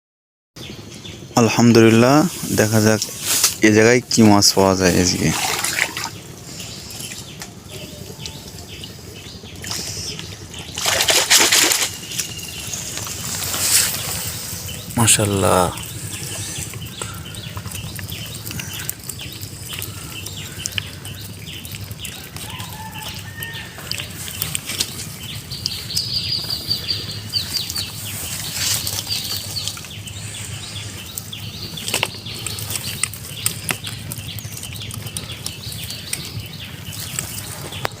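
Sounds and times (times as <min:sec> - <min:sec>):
steady low hum: 0:00.6 - 0:38.0
fish flapping slaps: 0:10.7 - 0:12.4.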